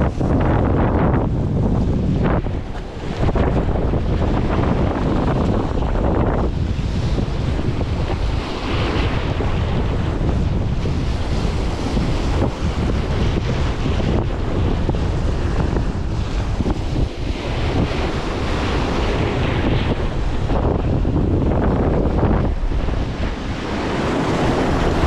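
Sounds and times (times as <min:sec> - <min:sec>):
sea waves washing: 0:00.0 - 0:25.0
wind buffeting microphone: 0:00.0 - 0:25.0.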